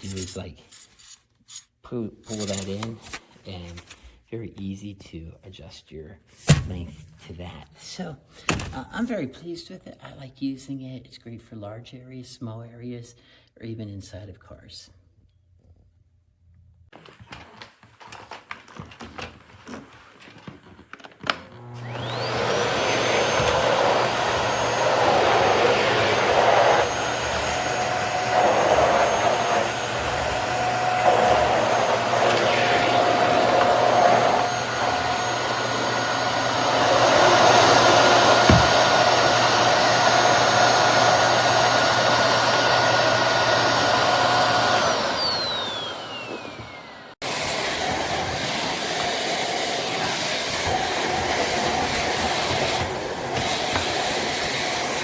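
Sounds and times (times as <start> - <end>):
vacuum cleaner motor whine: 21.2 - 55.0.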